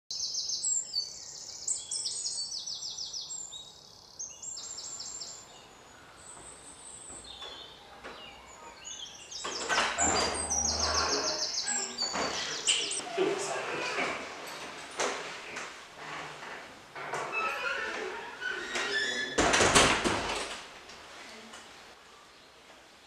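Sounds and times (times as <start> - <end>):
small birds chirping: 0.1 - 13.0
front door opening: 6.3 - 21.1.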